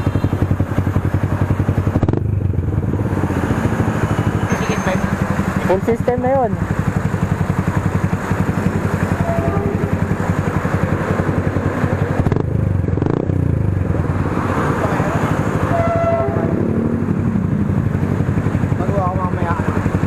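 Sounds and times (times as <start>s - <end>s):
motorcycle idling: 0.0s - 20.0s.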